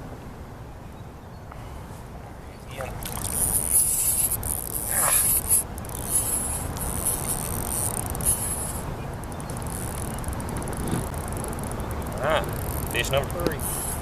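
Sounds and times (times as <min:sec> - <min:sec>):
fishing reel whirring: 0:03.0 - 0:14.0.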